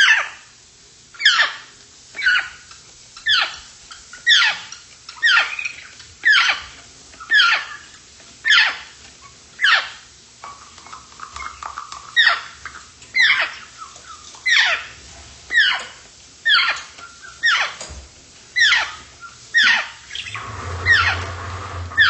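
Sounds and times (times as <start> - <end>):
parrot whistle-like calls: 1.2 - 2.6, 7.3 - 8.8, 18.6 - 22.0.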